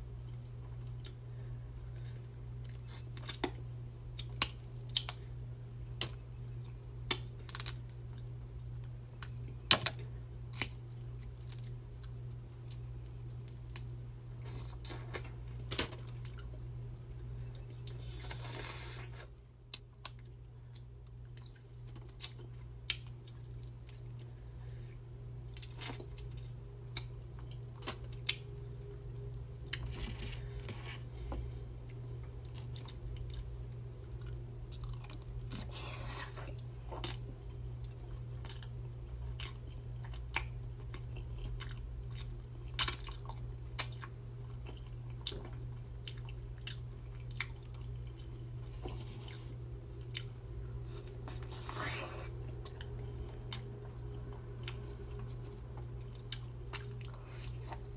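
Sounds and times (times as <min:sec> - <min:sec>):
steady low hum: 0:00.0 - 0:57.9
chewing: 0:31.9 - 0:42.3, 0:43.0 - 0:57.9.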